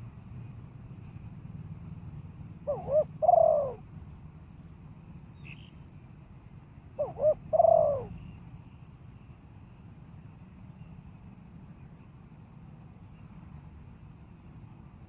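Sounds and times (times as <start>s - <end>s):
dove cooing: 2.6s - 3.8s, 7.0s - 8.2s.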